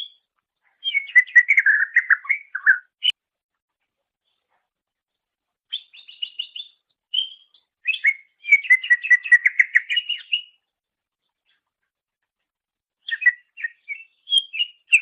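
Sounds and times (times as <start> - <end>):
bird singing: 0.8 - 3.2, 5.7 - 10.6, 13.0 - 15.0.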